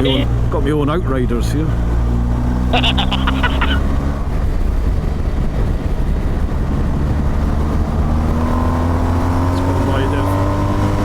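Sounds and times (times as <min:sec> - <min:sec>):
motorcycle engine humming: 0:00.0 - 0:08.2
road noise: 0:00.0 - 0:11.0.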